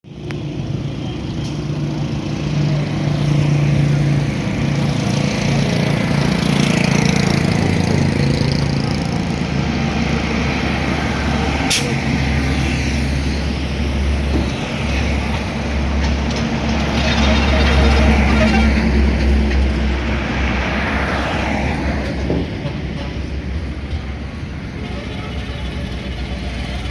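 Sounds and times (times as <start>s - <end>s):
heavy road traffic: 0.0s - 26.9s
truck and bus engines passing: 0.1s - 26.9s.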